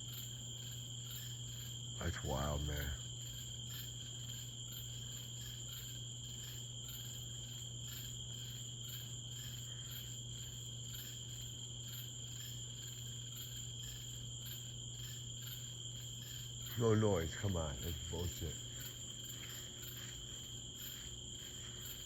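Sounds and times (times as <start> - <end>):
insects trilling: 0.0 - 22.0
steady low hum: 0.0 - 22.0.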